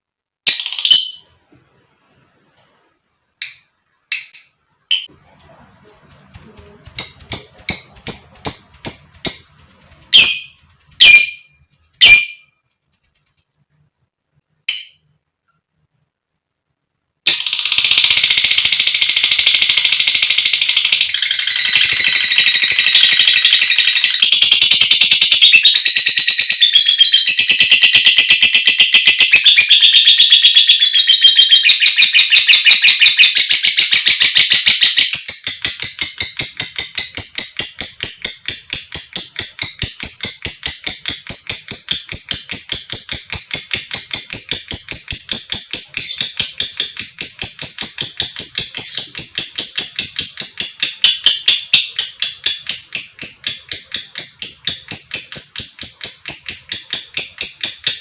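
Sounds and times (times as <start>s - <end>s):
lovebird chattering trill: 6.8s - 12.5s, 17.5s - 58.0s
lovebird ticking calls: 6.8s - 12.5s, 17.8s - 58.0s.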